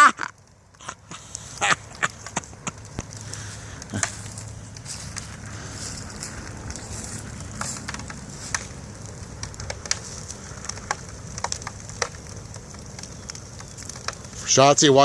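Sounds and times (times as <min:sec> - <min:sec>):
fire crackling and popping: 0:00.0 - 0:15.0
low rumble: 0:02.8 - 0:11.0.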